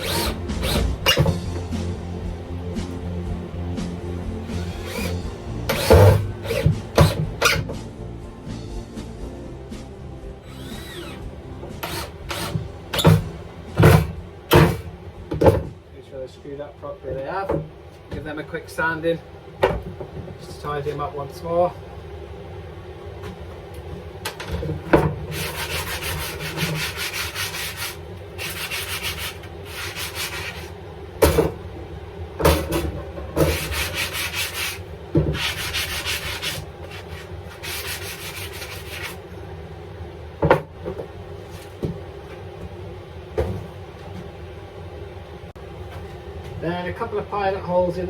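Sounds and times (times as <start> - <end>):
sandpaper rubbing on wood: 25.3 - 30.7, 33.4 - 39.2.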